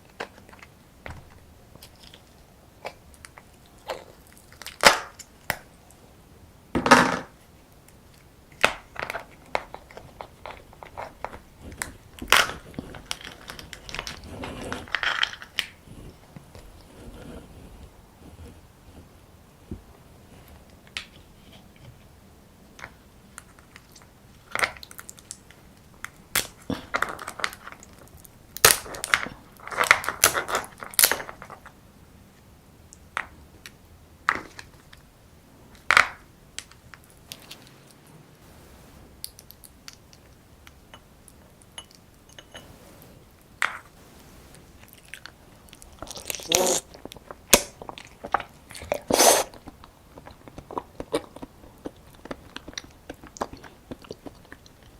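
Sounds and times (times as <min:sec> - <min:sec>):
crunching crab shell: 0:23.4 - 0:31.7, 0:44.8 - 0:54.9
chewing: 0:44.0 - 0:54.9.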